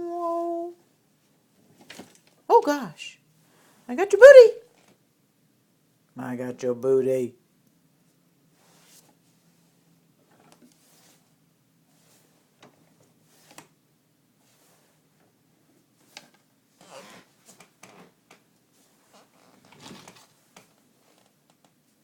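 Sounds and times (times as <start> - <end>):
parrot rustling in a drawer: 10.2 - 11.3, 18.7 - 21.3.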